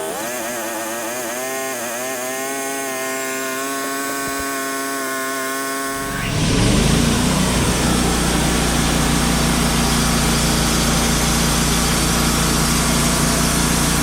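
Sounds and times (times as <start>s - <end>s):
band sawmill sawing wood: 5.6s - 14.0s
low rumble: 5.9s - 10.6s.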